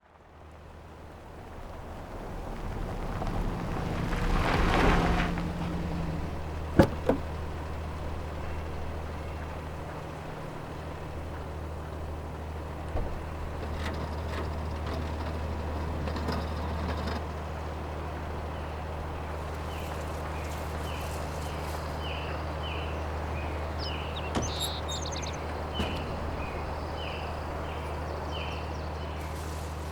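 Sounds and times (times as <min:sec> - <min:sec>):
low engine-like drone: 0:00.1 - 0:29.9
bird chirping: 0:18.5 - 0:29.9.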